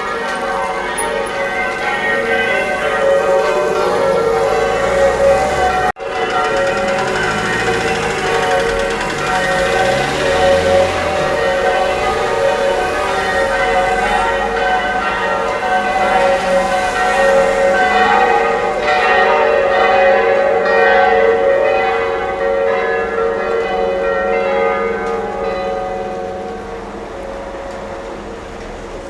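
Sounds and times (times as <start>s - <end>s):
church bells ringing: 0.0s - 29.0s.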